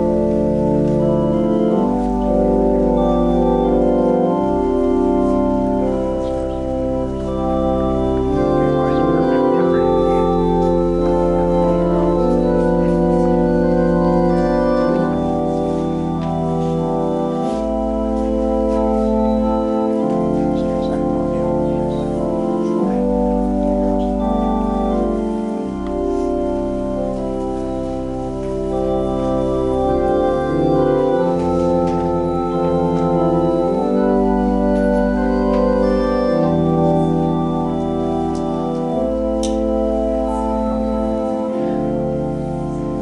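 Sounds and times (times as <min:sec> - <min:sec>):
organ playing sustained chords: 0:00.0 - 0:43.0.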